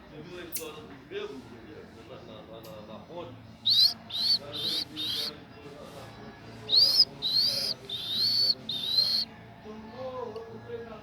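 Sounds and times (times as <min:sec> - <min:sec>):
shrill animal whistles: 0:03.7 - 0:05.3, 0:06.7 - 0:09.3.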